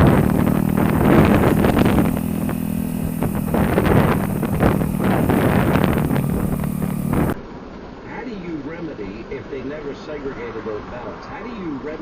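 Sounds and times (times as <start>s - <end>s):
vehicle engine running: 0.0s - 7.4s
wind noise on microphone: 0.0s - 7.4s.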